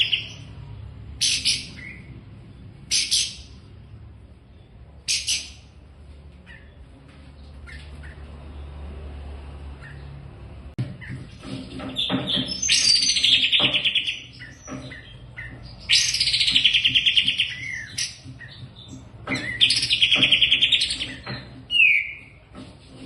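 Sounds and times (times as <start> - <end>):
songbird trilling: 0.0 - 0.5, 1.2 - 2.2, 2.8 - 3.6, 4.6 - 5.7, 12.0 - 22.3.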